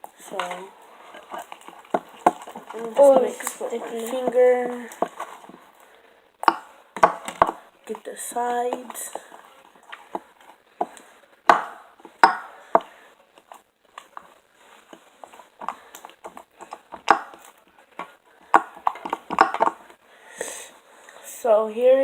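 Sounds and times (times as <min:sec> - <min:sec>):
sharp knocks: 0:11.5 - 0:12.6.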